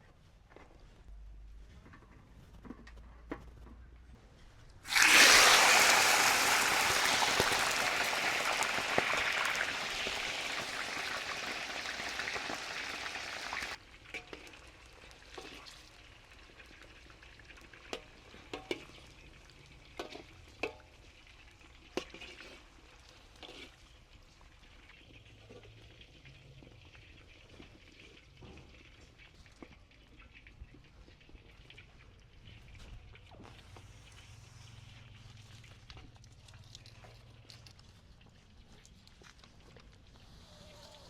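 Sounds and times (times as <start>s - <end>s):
food sizzling in hot oil: 4.9s - 13.8s.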